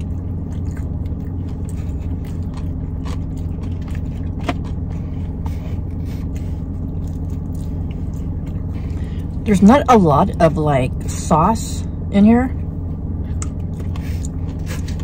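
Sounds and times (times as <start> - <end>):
chewing and mouth clicks: 0.0 - 9.4, 13.2 - 15.0
car cabin hum: 0.0 - 15.0.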